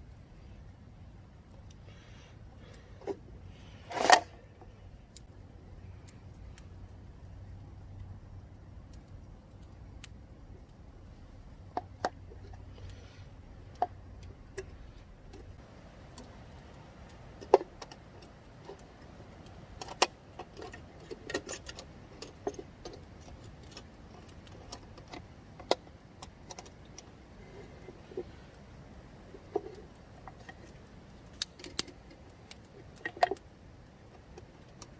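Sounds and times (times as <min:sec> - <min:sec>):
campfire crackling and popping: 0:00.0 - 0:34.9.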